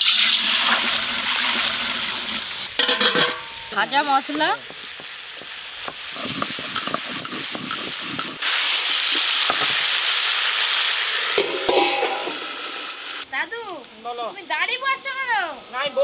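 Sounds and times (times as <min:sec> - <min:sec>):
vegetables sizzling in oil: 0:00.0 - 0:16.0
metal lid knocking onto wok: 0:02.8 - 0:03.5, 0:11.4 - 0:12.4
spatula clicking and scraping: 0:06.2 - 0:08.4.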